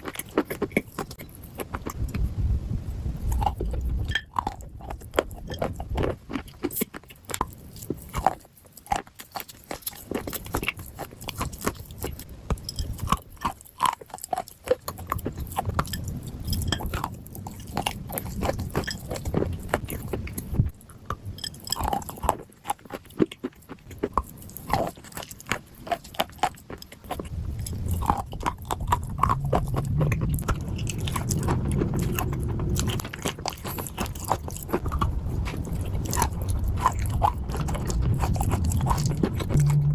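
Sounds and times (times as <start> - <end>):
person crunching dry clay: 0.0 - 39.9.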